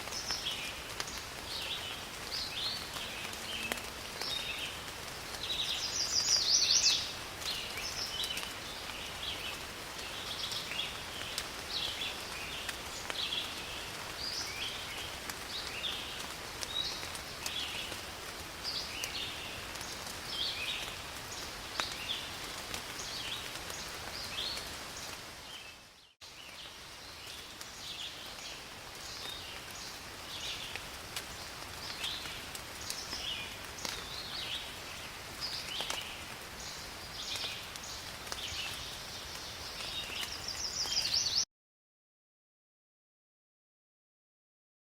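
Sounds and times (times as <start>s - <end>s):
rain falling in forest: 0.0s - 41.5s
birds chirping: 5.4s - 9.6s, 35.4s - 41.4s.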